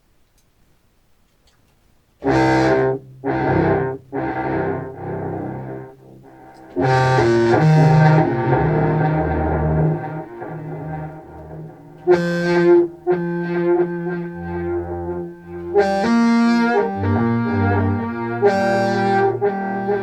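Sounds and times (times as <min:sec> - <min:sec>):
clarinet through effects pedals: 0:02.2 - 0:20.0.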